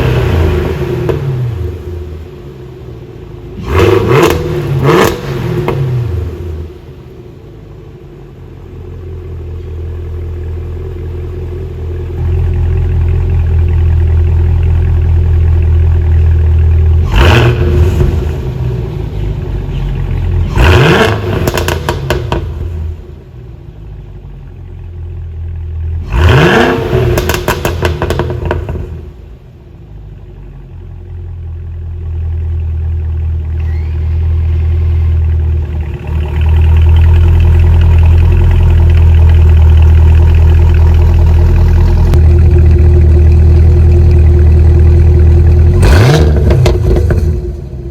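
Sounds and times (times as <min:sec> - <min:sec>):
car engine idling and revving: 0:00.0 - 0:47.9
exhaust pops crackling: 0:21.4 - 0:22.8, 0:27.2 - 0:29.0, 0:35.7 - 0:47.6.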